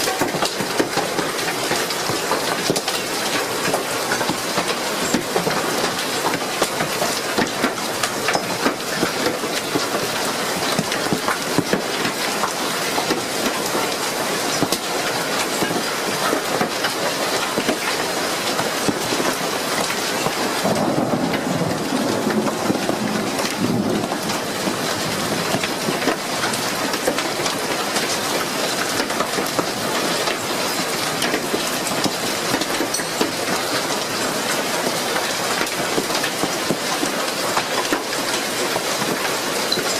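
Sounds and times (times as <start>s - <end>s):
hail and rain pelting down: 0.0s - 39.9s.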